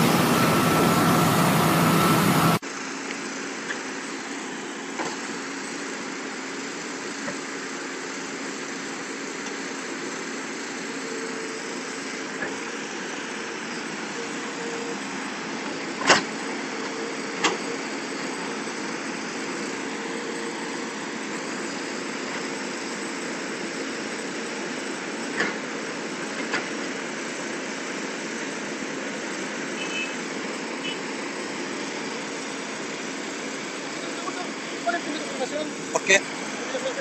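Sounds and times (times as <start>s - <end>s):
vehicle engine running: 0.0s - 2.6s.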